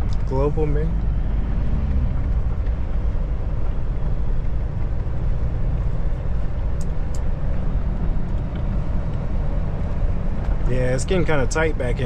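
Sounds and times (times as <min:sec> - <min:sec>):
truck engine low rumble: 0:00.0 - 0:12.0.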